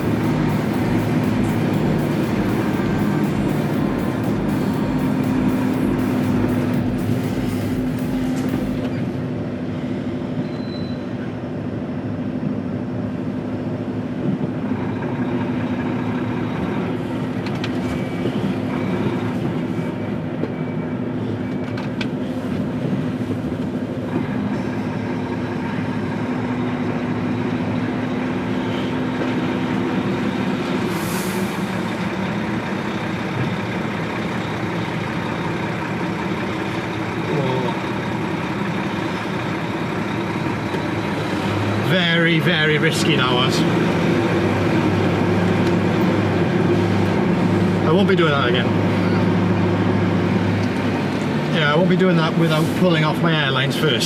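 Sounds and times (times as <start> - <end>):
truck diesel engine droning: 0.0 - 54.0.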